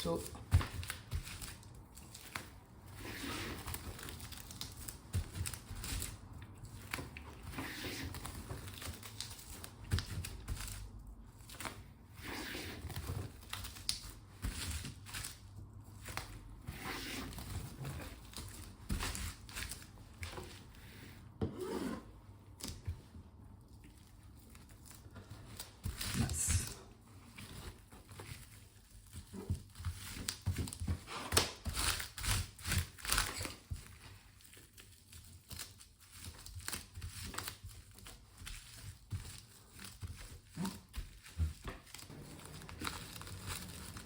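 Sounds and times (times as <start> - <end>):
cling film crinkling: 41.9 - 44.0.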